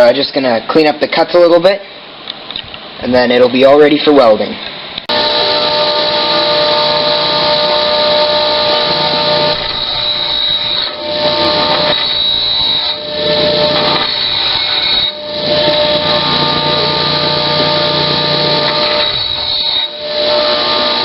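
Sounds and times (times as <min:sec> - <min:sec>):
angle grinder whining: 0:05.1 - 0:21.0.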